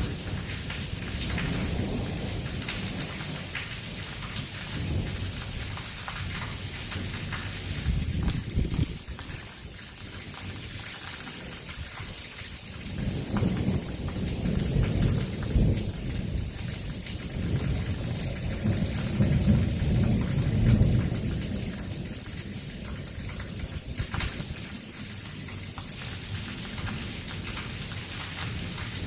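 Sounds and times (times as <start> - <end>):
thunder rumbling: 0.0 - 9.6, 12.9 - 29.0
heavy rain hiss: 0.0 - 10.5.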